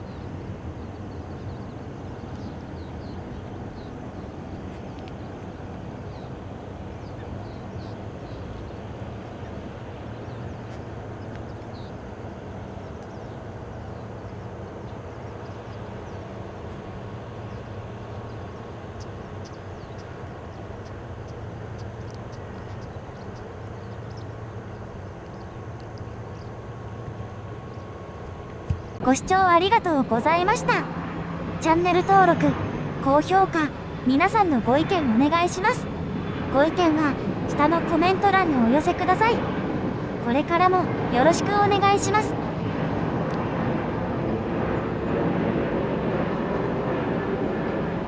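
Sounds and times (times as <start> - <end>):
birds chirping: 0.0 - 42.4
faint steady whine: 0.0 - 48.0
jet airliner engines rumbling: 0.0 - 48.0.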